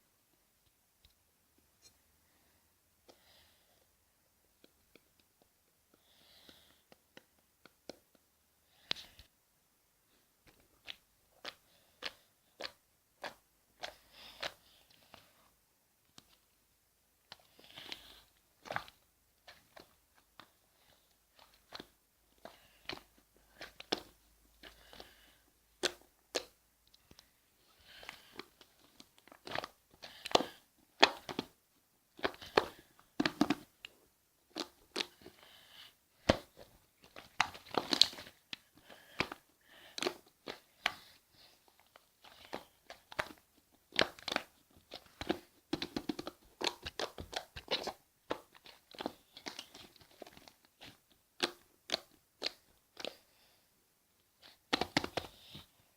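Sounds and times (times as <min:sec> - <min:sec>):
slime crunching and popping: 0:17.5 - 0:20.6, 0:27.8 - 0:35.4, 0:36.2 - 0:41.1, 0:42.2 - 0:53.3, 0:54.4 - 0:55.6.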